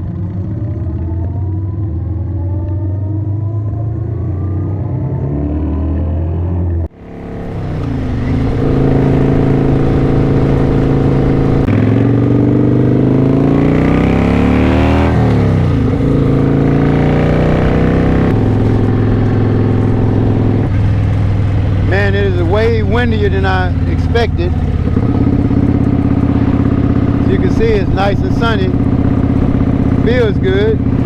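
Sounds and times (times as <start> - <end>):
motorcycle engine running: 0.0 - 3.2, 6.6 - 31.0
wind rush: 7.0 - 12.2, 17.4 - 31.0.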